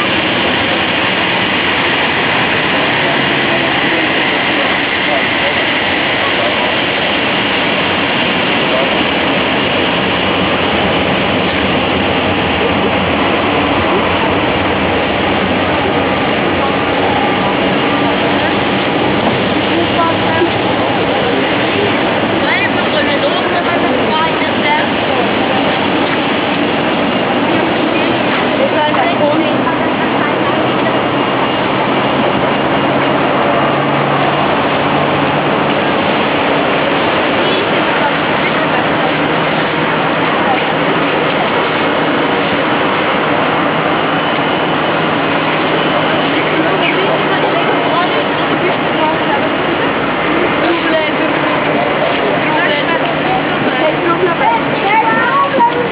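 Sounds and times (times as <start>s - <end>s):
jet engines roaring: 0.0s - 55.9s.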